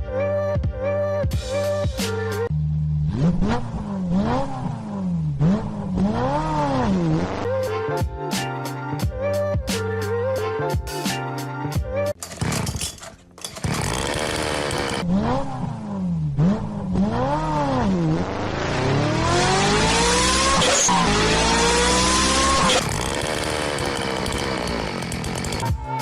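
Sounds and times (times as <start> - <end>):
motorcycle engine revving: 2.5 - 7.5, 12.2 - 25.8.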